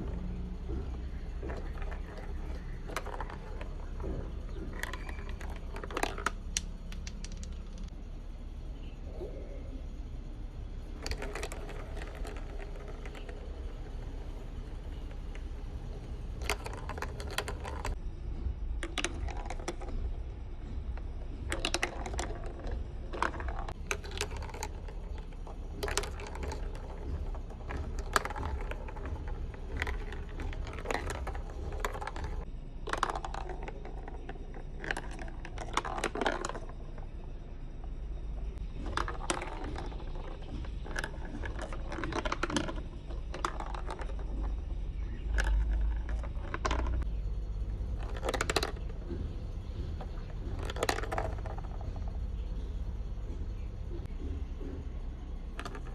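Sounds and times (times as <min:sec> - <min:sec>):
marbles clattering down a run: 0:00.0 - 0:07.9, 0:10.8 - 0:18.0, 0:18.8 - 0:52.6, 0:55.3 - 0:55.9
steady low hum: 0:00.0 - 0:55.9.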